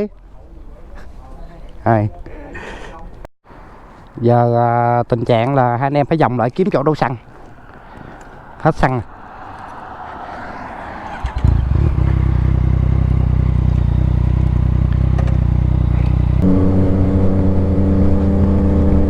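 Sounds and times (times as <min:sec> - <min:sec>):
motorcycle engine: 0:07.6 - 0:19.0.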